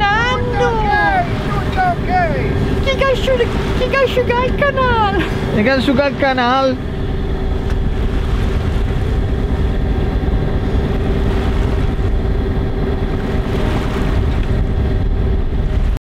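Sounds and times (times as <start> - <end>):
boat engine droning: 0.0 - 16.0
steady hum: 0.0 - 16.0.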